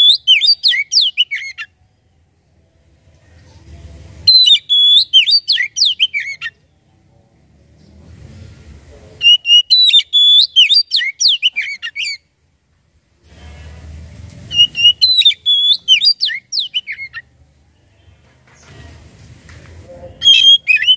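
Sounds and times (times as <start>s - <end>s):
bird singing whistled notes: 0.0s - 1.7s, 4.3s - 6.6s, 9.2s - 12.2s, 14.5s - 17.2s, 20.2s - 20.9s
faint low rumble: 1.8s - 4.3s.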